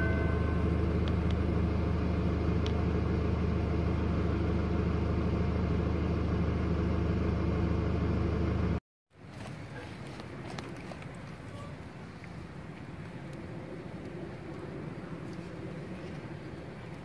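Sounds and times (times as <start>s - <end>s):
van engine idling: 0.0s - 8.8s.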